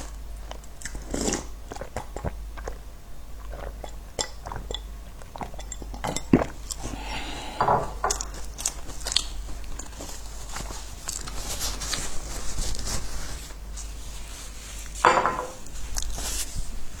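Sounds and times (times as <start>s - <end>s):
biscuits crunching while chewed: 0.0s - 7.1s, 8.1s - 12.2s, 15.9s - 16.3s.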